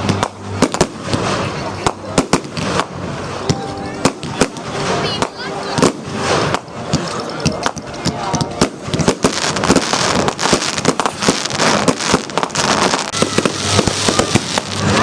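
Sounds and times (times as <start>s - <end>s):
fireworks cracking and popping: 0.0s - 15.0s.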